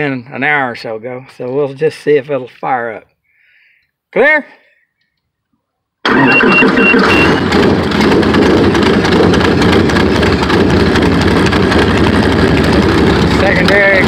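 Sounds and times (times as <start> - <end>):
high beeps: 6.1 - 7.4
aircraft engine running: 6.1 - 14.0.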